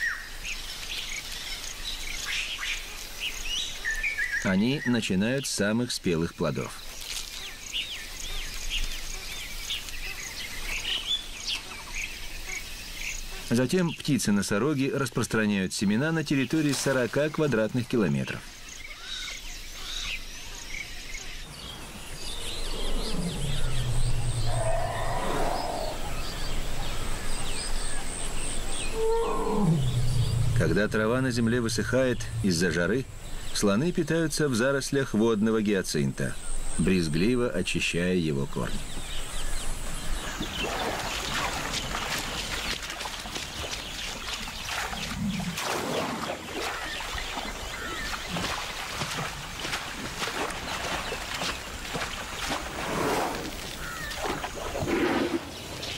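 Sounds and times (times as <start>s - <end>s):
plants rustling and tearing: 6.9s - 7.5s
birds chirping and calling: 15.8s - 52.8s, 53.5s - 55.9s
water splashing and dripping: 16.3s - 18.1s, 39.9s - 55.9s.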